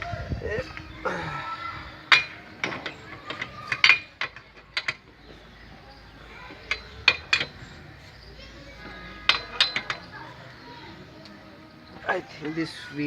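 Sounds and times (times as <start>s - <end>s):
wrench clicking on bolts: 2.1s - 5.0s, 6.7s - 7.8s, 9.3s - 10.1s.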